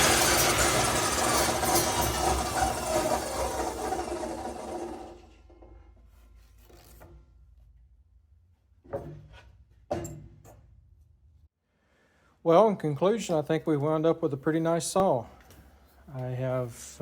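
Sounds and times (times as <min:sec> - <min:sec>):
table saw running: 0:00.0 - 0:05.7.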